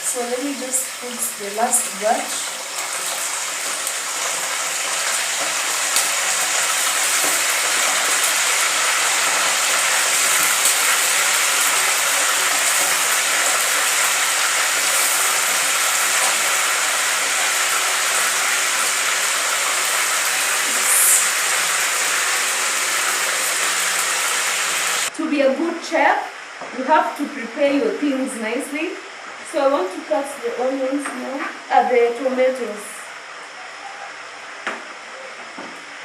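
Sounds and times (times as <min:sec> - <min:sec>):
chicken frying in hot oil: 0:00.0 - 0:25.1
hot oil popping: 0:02.1 - 0:25.1.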